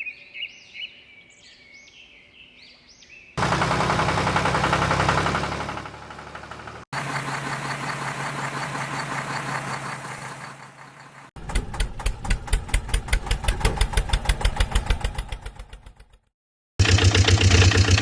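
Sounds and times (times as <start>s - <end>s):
engine running drone: 3.4s - 16.2s, 16.8s - 18.0s
engine chugging idle: 3.4s - 18.0s.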